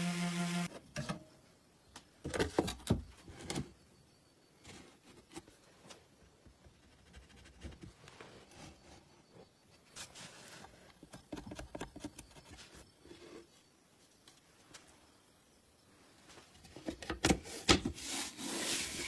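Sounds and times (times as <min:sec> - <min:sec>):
small electric motor humming: 0:00.0 - 0:00.7.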